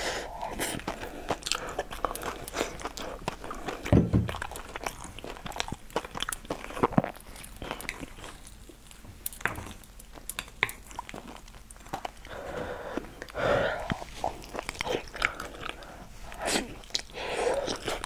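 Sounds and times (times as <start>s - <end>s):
person chewing: 0.2s - 18.0s
low thump: 3.9s - 4.4s.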